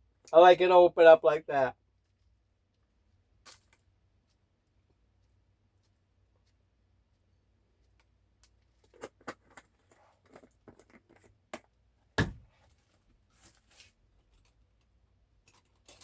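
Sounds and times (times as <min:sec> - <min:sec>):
loud thump: 0:12.2 - 0:12.5
soft rustles: 0:12.5 - 0:14.6.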